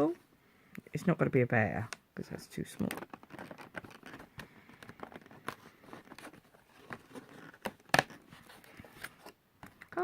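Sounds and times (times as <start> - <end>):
cardboard tearing and rustling: 3.0 - 9.2.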